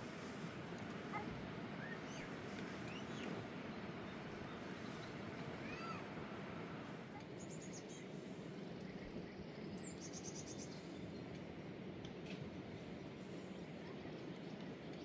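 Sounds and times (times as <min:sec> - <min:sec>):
small birds chirping: 0:00.0 - 0:06.0, 0:07.2 - 0:11.6
outdoor background hiss: 0:00.0 - 0:15.0.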